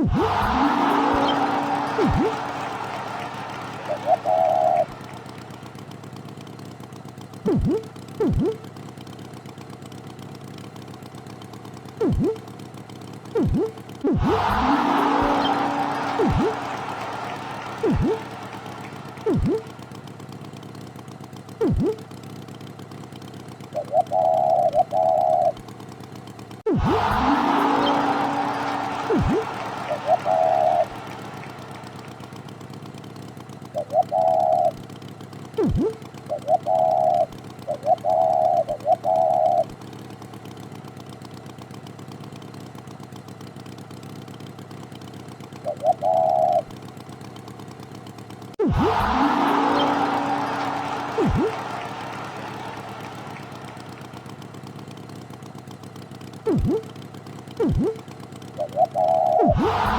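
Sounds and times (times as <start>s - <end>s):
cartoon swoop sound effect: 0.0s - 5.0s, 7.5s - 8.6s, 12.0s - 12.4s, 13.4s - 19.7s, 21.6s - 22.0s, 26.7s - 32.0s, 35.6s - 37.3s, 48.6s - 54.1s, 56.5s - 56.9s, 57.6s - 58.0s, 58.6s - 59.9s
wavering horn-like honks: 0.0s - 6.0s, 7.5s - 8.6s, 12.0s - 12.4s, 13.4s - 20.0s, 21.6s - 22.0s, 26.7s - 32.8s, 48.6s - 54.9s, 58.6s - 59.9s
low engine-like rumble: 0.0s - 8.8s, 12.0s - 12.5s, 21.4s - 22.2s, 26.6s - 40.3s, 48.5s - 59.9s.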